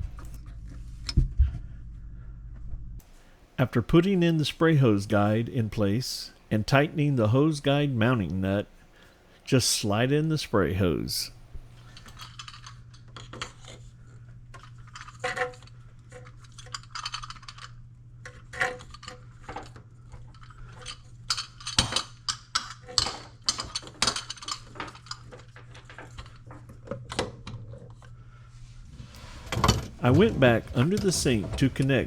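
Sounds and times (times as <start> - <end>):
steady low hum: 0.0 - 13.1, 28.0 - 32.0.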